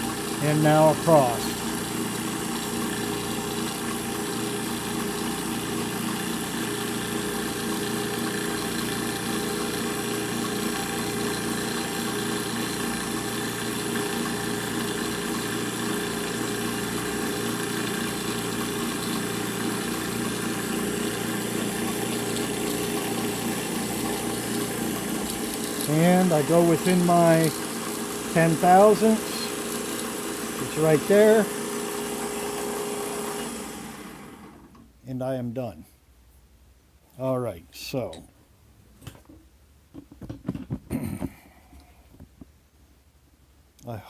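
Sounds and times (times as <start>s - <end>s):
milling machine running: 0.0s - 34.7s.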